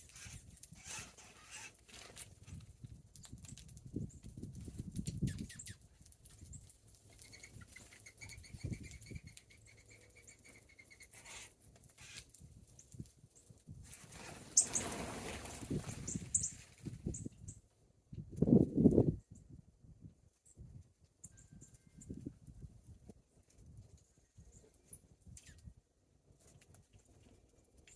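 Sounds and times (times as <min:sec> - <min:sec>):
wing flutters: 0:00.0 - 0:03.3, 0:06.4 - 0:12.5, 0:13.8 - 0:17.2.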